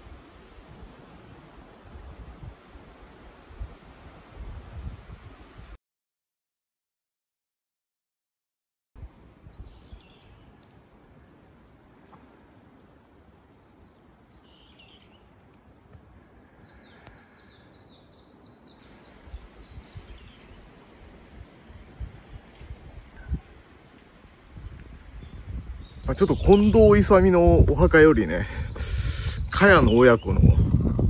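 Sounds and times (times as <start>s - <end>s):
small birds chirping: 9.0s - 20.7s, 24.2s - 30.7s.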